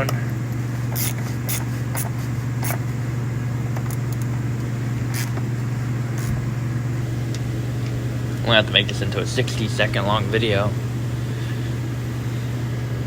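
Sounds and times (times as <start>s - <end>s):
low hum: 0.0s - 13.0s
socket ratchet clicking: 0.9s - 2.8s, 5.1s - 5.4s.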